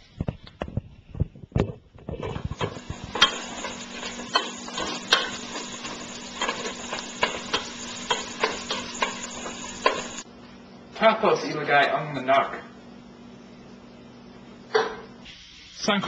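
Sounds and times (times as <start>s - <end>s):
spatula knocking and scraping pot: 2.1s - 10.2s
garlic and onion sizzling in oil: 2.2s - 10.3s.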